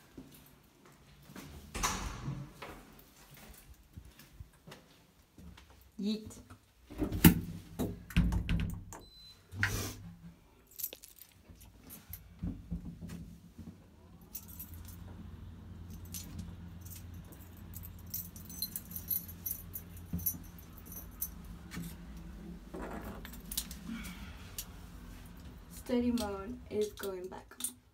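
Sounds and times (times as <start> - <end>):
lift button beep: 9.0 - 9.4
lift car humming: 13.9 - 27.1
metallic jingling with clicks: 15.8 - 22.0.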